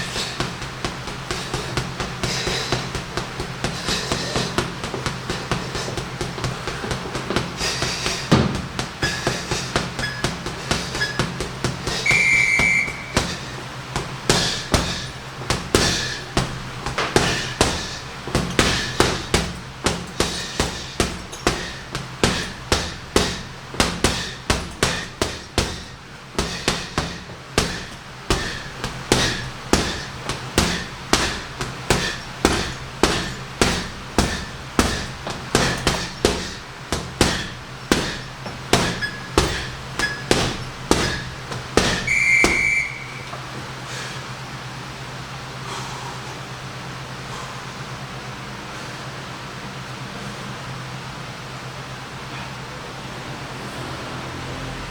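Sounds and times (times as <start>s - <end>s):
punches thudding on heavy bag: 0.0s - 43.8s
short electronic beep: 42.1s - 43.4s.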